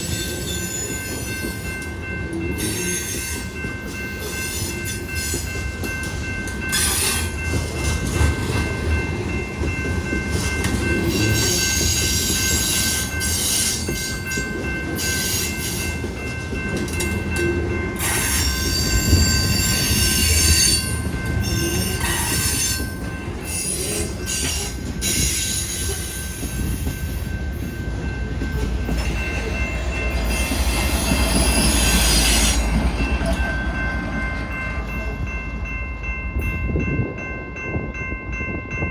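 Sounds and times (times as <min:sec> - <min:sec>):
train wheels squealing on rail: 0:00.0 - 0:06.0, 0:06.6 - 0:08.3, 0:10.6 - 0:16.0, 0:16.9 - 0:33.9
train cars rattling and clanking: 0:00.0 - 0:38.9
train low rumble: 0:00.0 - 0:38.9.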